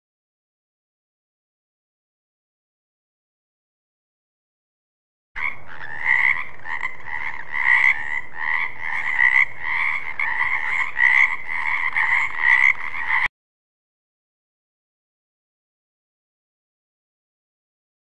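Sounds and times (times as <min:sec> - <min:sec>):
frogs croaking: 0:05.4 - 0:13.3.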